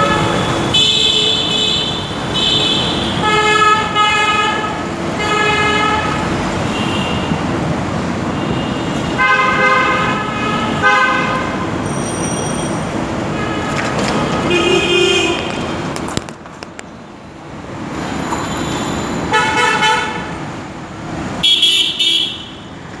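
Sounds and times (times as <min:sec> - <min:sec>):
vehicle horns honking: 0:00.0 - 0:07.6, 0:08.3 - 0:15.9, 0:18.6 - 0:20.3, 0:21.4 - 0:22.7
traffic hum: 0:00.0 - 0:23.0.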